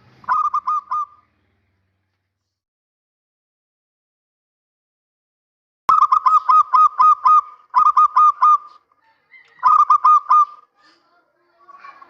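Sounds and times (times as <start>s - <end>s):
dove cooing: 0.2s - 1.2s, 5.9s - 10.7s.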